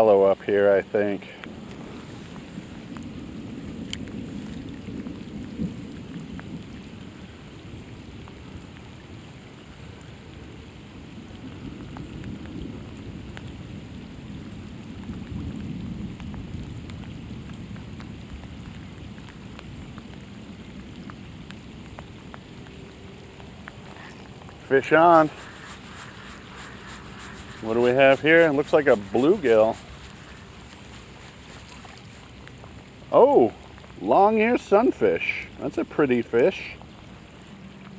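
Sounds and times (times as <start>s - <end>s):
heavy rain falling: 0.0s - 37.9s
low rumble: 22.9s - 33.9s.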